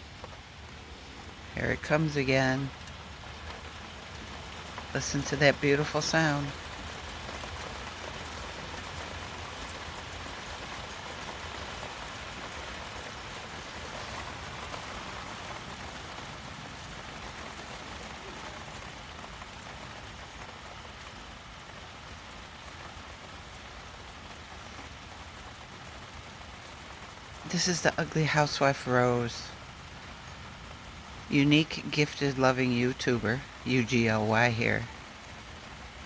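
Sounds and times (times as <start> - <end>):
rain pattering on surfaces: 0.0 - 36.0.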